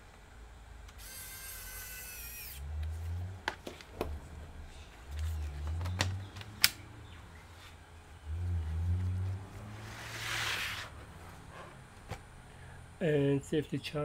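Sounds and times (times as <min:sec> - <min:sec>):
electric screwdriver whirring: 0:00.9 - 0:02.6
low rumbling: 0:04.1 - 0:13.0.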